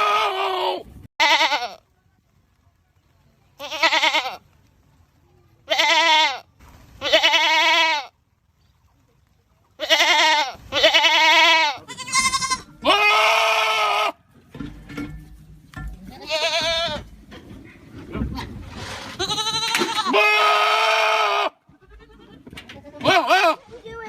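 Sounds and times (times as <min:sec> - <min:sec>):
goats bleating loudly: 0:00.0 - 0:01.8, 0:03.6 - 0:04.4, 0:05.7 - 0:08.1, 0:09.8 - 0:14.2, 0:16.1 - 0:17.1, 0:19.1 - 0:23.6.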